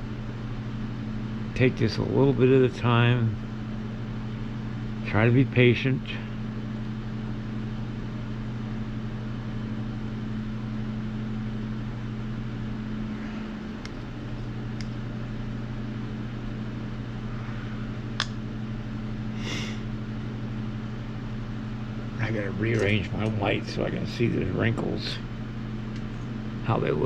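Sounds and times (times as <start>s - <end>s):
heater humming: 0.0s - 27.0s.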